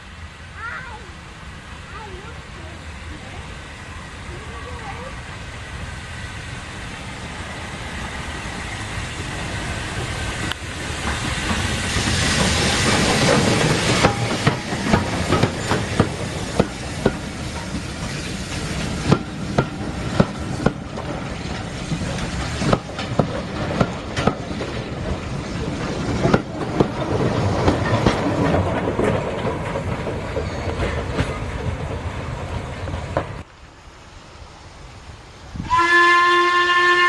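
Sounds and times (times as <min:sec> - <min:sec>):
train rumbling past: 0:00.0 - 0:37.0
wheels clicking over rail joints: 0:08.8 - 0:33.5.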